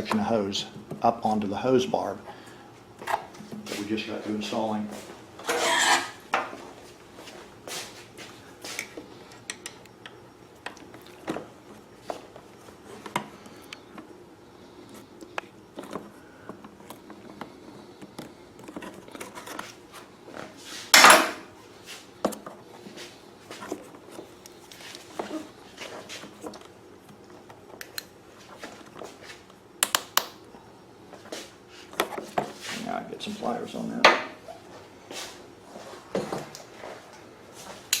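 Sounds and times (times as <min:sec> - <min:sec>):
hose scraping rub: 0:05.4 - 0:06.2.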